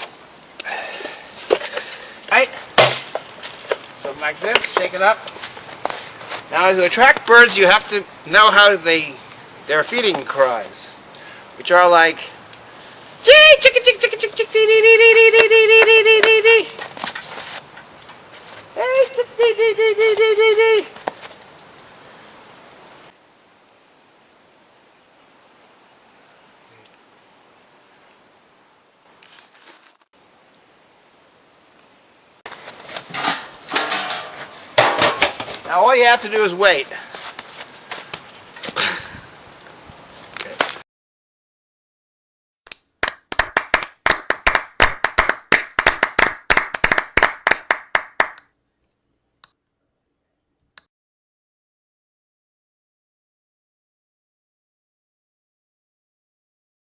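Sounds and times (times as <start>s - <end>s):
outdoor background hiss: 0.0s - 40.8s, 42.8s - 50.8s
hands clapping: 15.3s - 16.4s, 42.7s - 48.5s.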